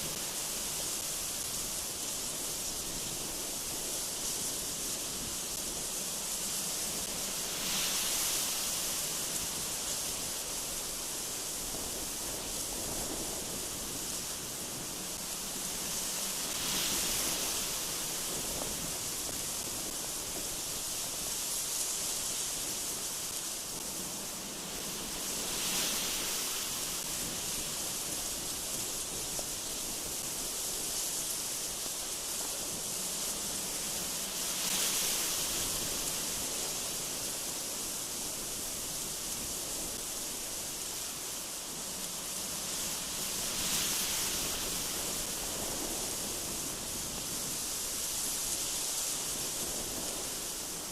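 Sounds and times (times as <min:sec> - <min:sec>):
gusty wind through trees: 0:00.0 - 0:50.9.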